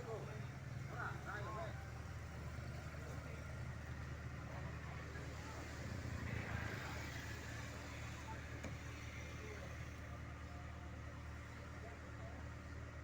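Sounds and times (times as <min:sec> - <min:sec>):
low hum of vehicle engines: 0:00.0 - 0:13.0.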